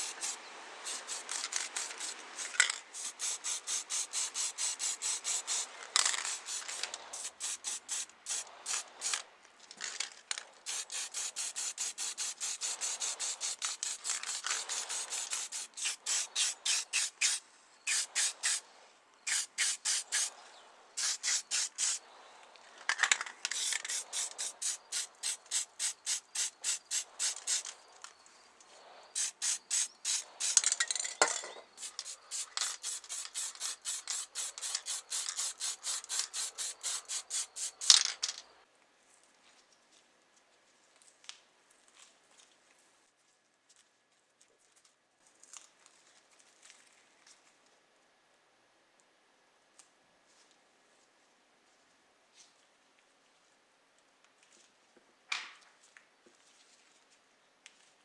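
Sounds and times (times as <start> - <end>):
abrasive rubbing strokes: 0.0 - 9.2, 10.6 - 18.6, 19.3 - 20.4, 21.0 - 22.1, 23.5 - 27.7, 28.8 - 30.7, 31.7 - 38.0.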